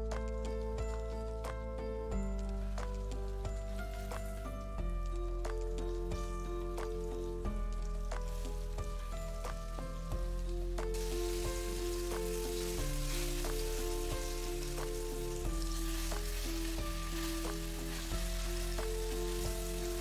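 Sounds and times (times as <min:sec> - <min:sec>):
instrumental background music: 0:00.0 - 0:20.0
chicken sizzling in frying pan: 0:05.6 - 0:20.0.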